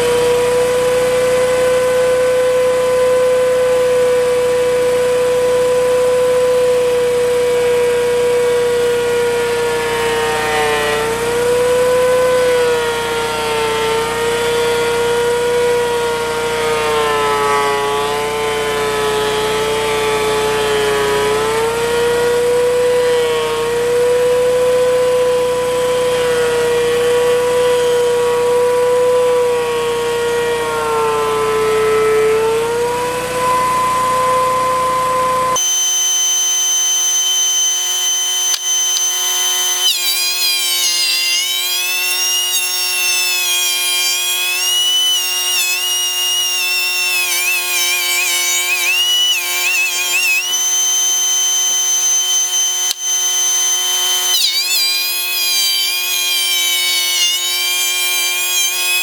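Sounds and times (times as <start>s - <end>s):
planer motor whining: 0.0s - 59.0s
steady buzzing tone: 35.6s - 59.0s.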